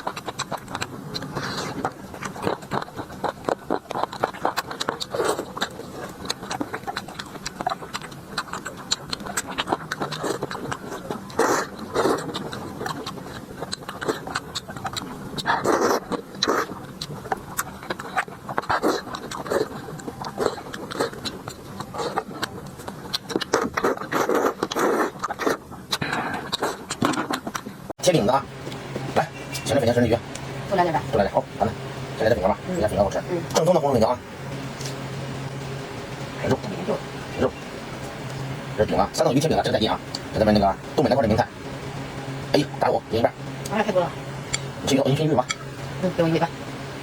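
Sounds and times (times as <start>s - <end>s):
chewing with wet mouth clicks: 0.0s - 27.8s
lip smacks: 0.0s - 27.8s.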